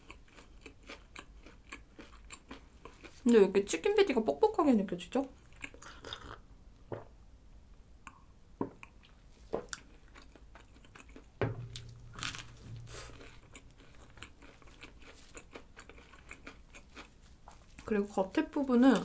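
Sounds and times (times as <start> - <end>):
person chewing crunchy burger: 0.0 - 3.2, 5.4 - 6.4, 8.8 - 17.8.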